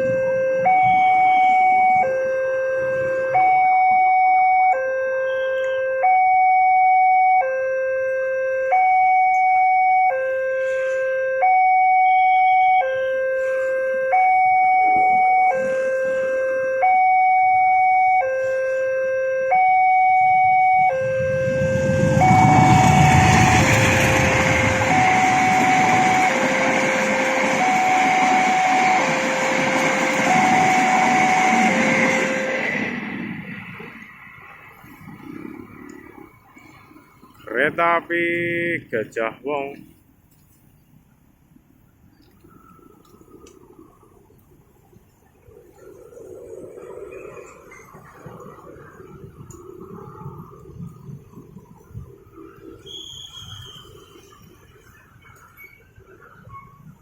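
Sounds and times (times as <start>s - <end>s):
level crossing two-tone alarm: 0.0s - 33.1s
passing train rumble: 19.9s - 39.9s, 41.2s - 57.0s.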